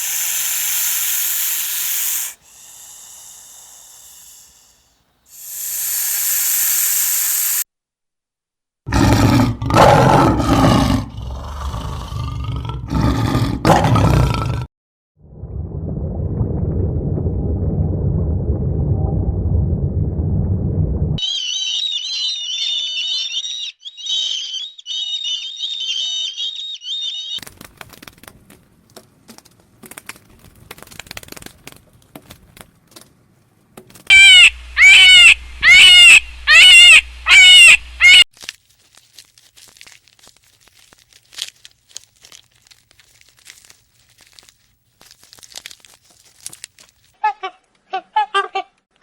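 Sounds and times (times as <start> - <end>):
loud shrill calls: 0.0 - 4.6, 21.2 - 27.4, 34.1 - 38.2
high rapid chirping: 5.4 - 7.6
soft rustling: 38.3 - 47.2.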